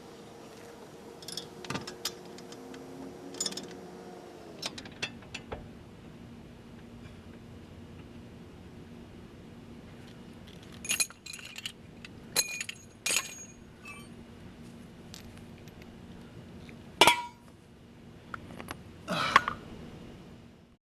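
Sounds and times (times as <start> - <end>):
metal clinking and jingling: 3.3 - 3.8, 10.5 - 11.8, 12.4 - 14.1.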